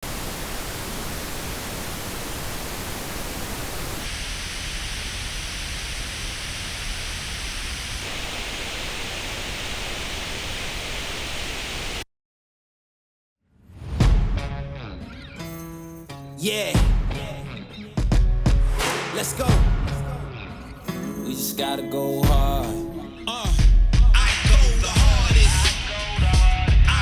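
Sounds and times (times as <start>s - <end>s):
pink noise hiss: 0.0s - 12.0s.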